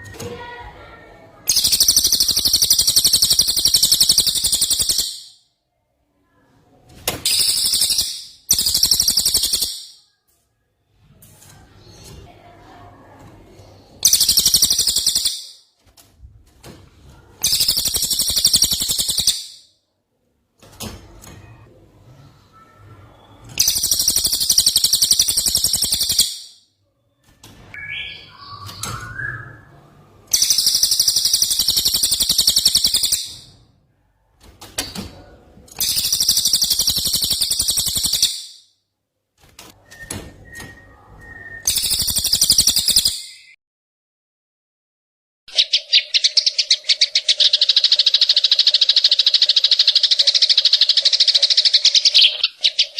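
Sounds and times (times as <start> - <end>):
bird rattling trills: 1.5 - 5.3, 7.3 - 10.0, 14.0 - 15.6, 17.4 - 19.6, 23.6 - 26.5, 30.3 - 33.4, 35.8 - 38.6, 45.5 - 52.9
soft bird chirps: 1.5 - 5.4, 7.3 - 10.2, 13.5 - 15.6, 17.4 - 19.7, 27.8 - 33.6, 45.5 - 52.9
thin bird whistle: 1.5 - 5.4, 39.8 - 43.6.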